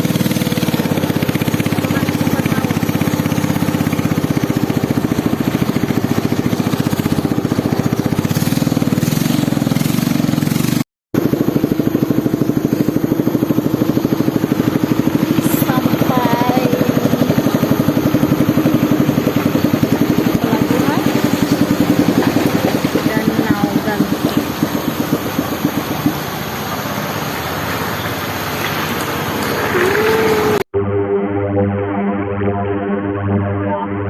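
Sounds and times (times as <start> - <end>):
small engine running: 0.0 - 30.7.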